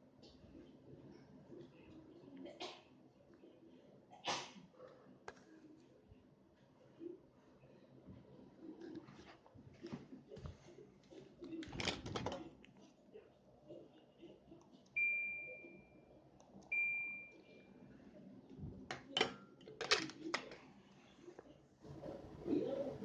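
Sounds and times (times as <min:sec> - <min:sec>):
air conditioner electronic beeps: 0:14.9 - 0:17.7.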